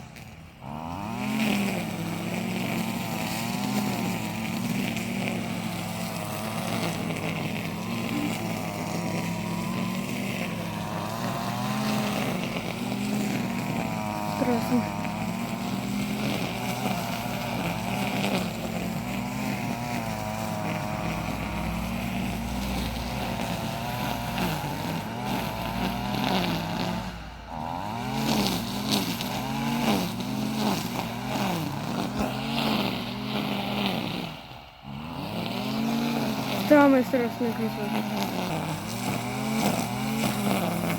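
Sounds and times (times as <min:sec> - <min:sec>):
car engine revving: 0:00.0 - 0:40.9
road noise inside car: 0:14.0 - 0:14.9, 0:18.4 - 0:33.0.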